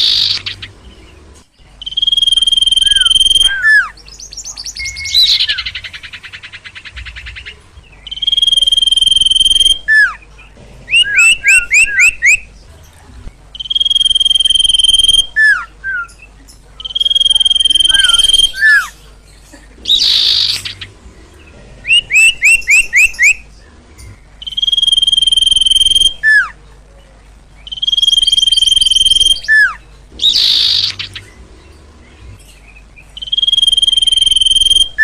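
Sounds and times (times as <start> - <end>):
bird rising chirps: 0.0 - 12.6, 13.5 - 23.6, 24.2 - 26.6, 27.6 - 35.0
bird whistles: 1.8 - 5.9, 8.1 - 10.2, 13.6 - 16.2, 16.8 - 18.9, 21.9 - 23.4, 24.4 - 26.6, 27.6 - 31.3, 33.2 - 35.0.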